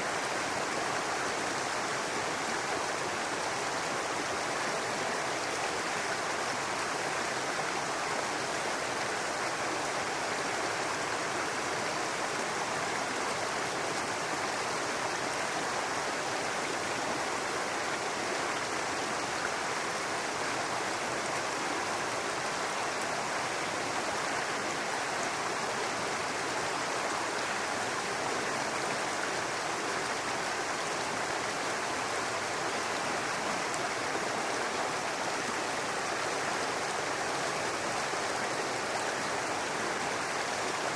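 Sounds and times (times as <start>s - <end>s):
babbling brook: 0.0s - 40.9s.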